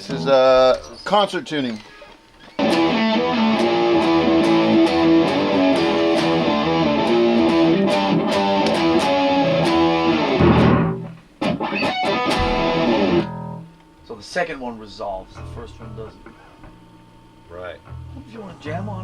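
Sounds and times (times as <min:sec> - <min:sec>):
distorted electric guitar riff: 0:02.5 - 0:13.8.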